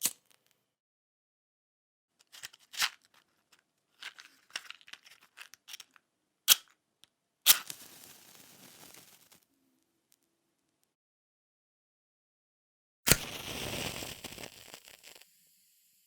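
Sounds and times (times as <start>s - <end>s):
fire crackling: 7.6s - 9.4s, 13.1s - 15.2s.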